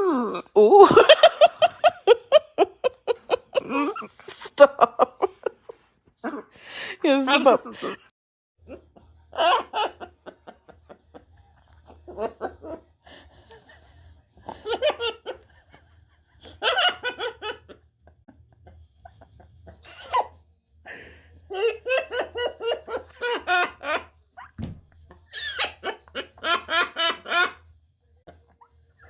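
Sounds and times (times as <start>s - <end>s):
person laughing: 0.0s - 6.5s.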